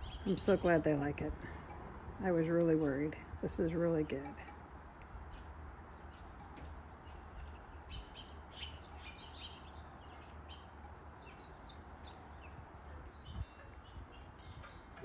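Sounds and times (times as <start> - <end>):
songbirds chirping: 0.0 - 15.0
wind rumble on microphone: 11.2 - 15.0.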